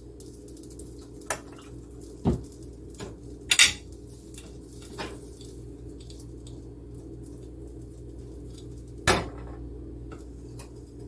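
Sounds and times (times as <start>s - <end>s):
pots and pans clattering: 2.3s - 3.9s.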